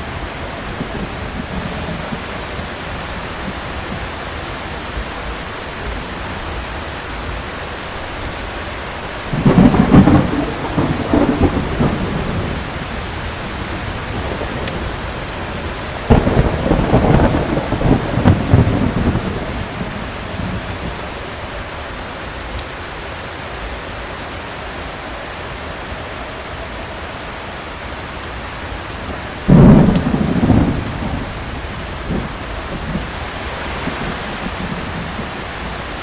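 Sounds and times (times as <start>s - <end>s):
thunder claps rumbling: 0.0s - 6.6s, 9.2s - 21.3s, 28.8s - 36.0s
heavy rain falling: 0.0s - 36.0s.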